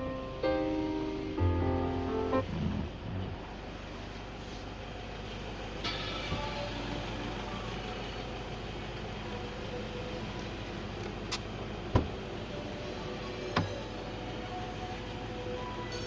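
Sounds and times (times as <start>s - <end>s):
low rumbling noise: 0.0s - 15.4s.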